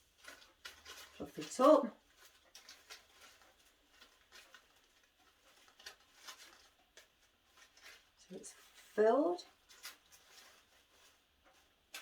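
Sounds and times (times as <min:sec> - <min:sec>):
artificial flowers rustling: 0:00.0 - 0:12.0.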